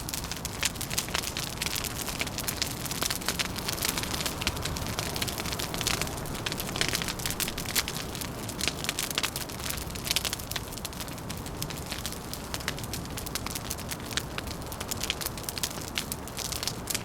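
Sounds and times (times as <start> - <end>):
low background noise: 0.0 - 17.0
wood fire crackling and popping: 0.0 - 17.0.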